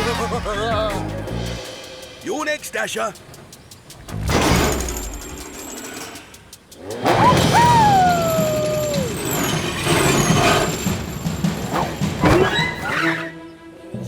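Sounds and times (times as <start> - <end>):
whirring rush: 1.4 - 13.9
high wavering squeals: 2.3 - 13.7
long sliding cartoon cry: 7.1 - 9.6.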